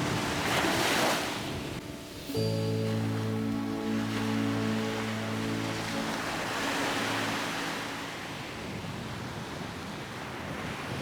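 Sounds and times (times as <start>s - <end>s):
sea waves washing on beach: 0.0s - 11.0s
background music: 0.1s - 8.4s.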